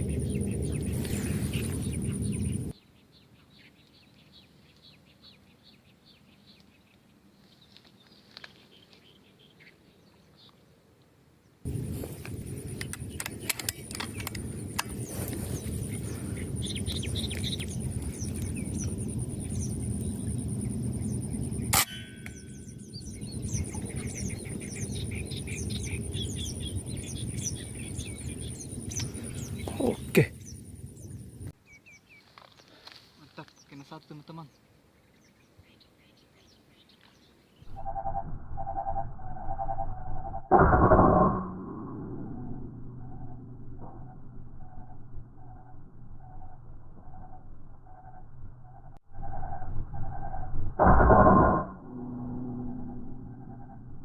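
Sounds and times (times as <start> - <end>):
loud low rumbling noise: 0.0 - 2.7, 11.7 - 31.5
small birds chirping: 0.0 - 37.8
high insect trill: 11.7 - 31.5
high pulsing buzz: 11.7 - 31.5.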